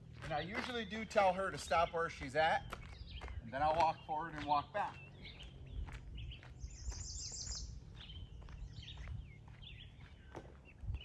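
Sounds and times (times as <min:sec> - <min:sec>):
footsteps on a trail: 0:00.0 - 0:11.0
birds chirping and trilling: 0:00.3 - 0:11.0.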